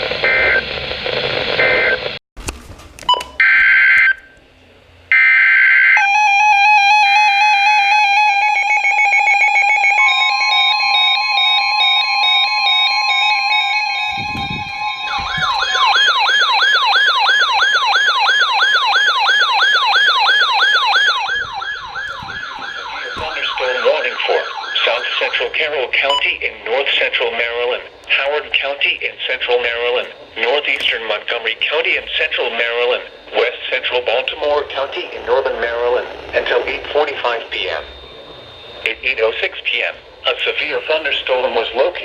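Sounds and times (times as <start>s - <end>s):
warbling siren-like tone: 5.1s - 26.0s, 31.3s - 39.7s
steady electronic alert tone: 8.6s - 40.8s
screeching digital data burst: 13.1s - 26.3s, 31.4s - 42.0s.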